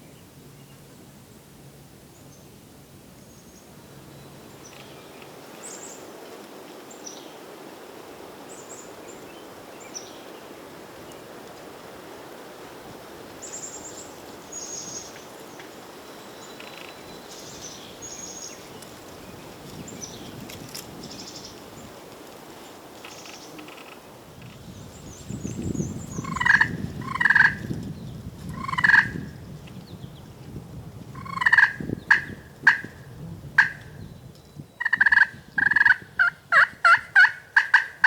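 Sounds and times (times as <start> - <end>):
small songbirds chirping: 13.4 - 22.0, 24.5 - 30.3
turkey calls: 26.2 - 27.7, 28.6 - 29.2, 31.2 - 33.0, 33.6 - 34.0, 34.8 - 38.0.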